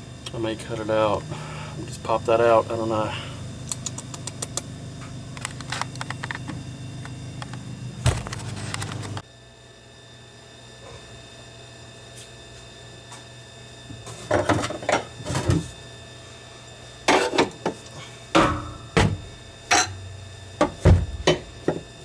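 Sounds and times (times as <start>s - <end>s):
steady low hum: 0.0s - 9.2s, 13.9s - 22.0s.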